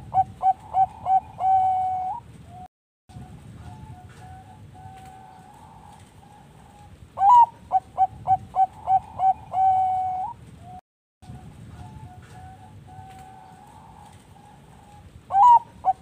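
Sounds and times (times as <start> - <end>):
dove cooing: 0.0 - 2.6, 3.2 - 16.0.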